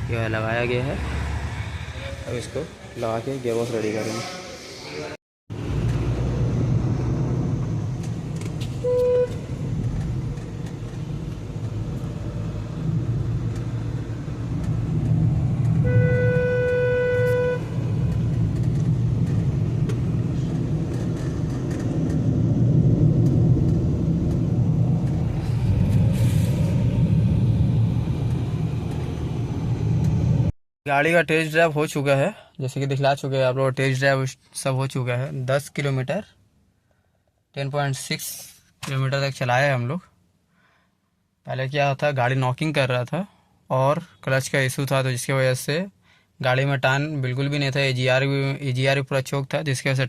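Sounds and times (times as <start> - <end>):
car engine and road noise: 0.0 - 30.6
car horn: 8.8 - 9.5, 15.8 - 17.9.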